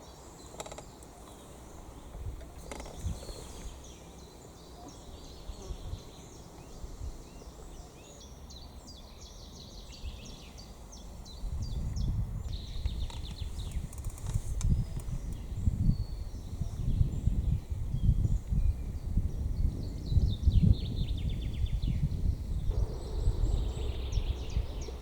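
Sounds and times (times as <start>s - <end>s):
small birds chirping: 0.0s - 25.0s
low rumble: 22.6s - 25.0s.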